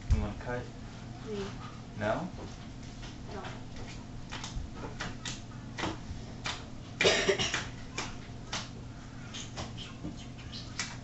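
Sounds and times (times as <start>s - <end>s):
short cough: 7.0s - 7.6s.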